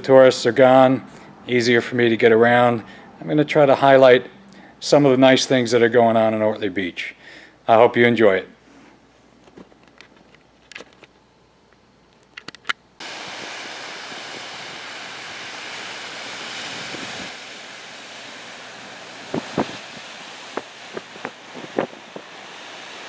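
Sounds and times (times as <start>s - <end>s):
ocean surf rushing: 13.0s - 23.0s
wind on microphone: 16.6s - 17.4s, 19.2s - 22.6s.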